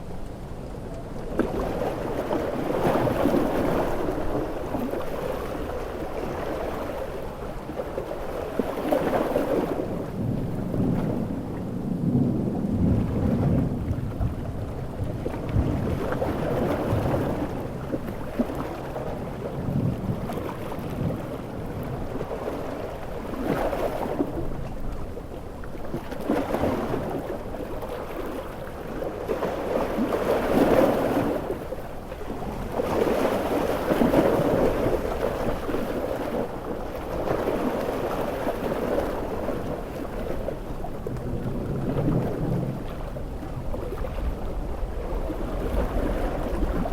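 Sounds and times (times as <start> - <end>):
sea waves breaking: 0.0 - 46.9
low rolling thunder: 9.6 - 22.9, 39.3 - 46.9.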